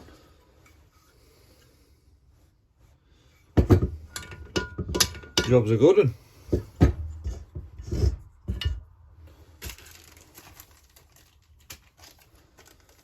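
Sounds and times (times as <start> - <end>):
tools knocking and clattering: 3.6 - 5.8, 6.4 - 9.0.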